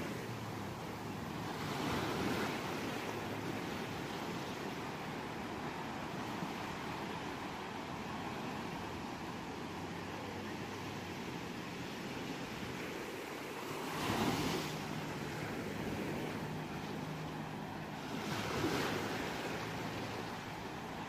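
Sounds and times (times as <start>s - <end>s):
ocean waves washing on shore: 0.0s - 21.0s.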